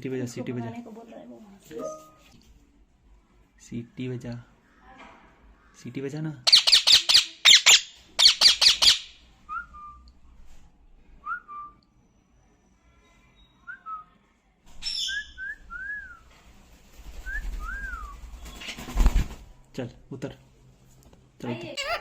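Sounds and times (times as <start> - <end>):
parrot squawking: 6.5 - 9.1, 21.8 - 22.0
parrot whistled notes: 21.8 - 22.0.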